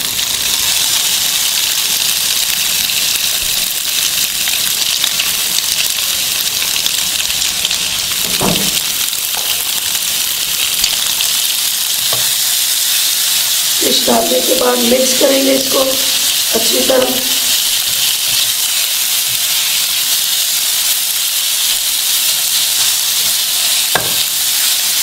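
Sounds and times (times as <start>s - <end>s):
onion frying in a pan: 0.0s - 25.0s
brief knock: 8.3s - 8.8s.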